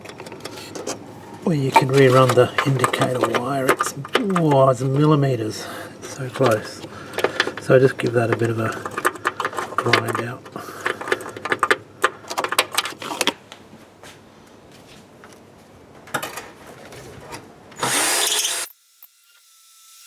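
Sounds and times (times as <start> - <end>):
tool handling clicks and knocks: 0.0 - 1.0, 1.6 - 13.6
power tool grinding: 1.6 - 11.7, 17.8 - 18.7.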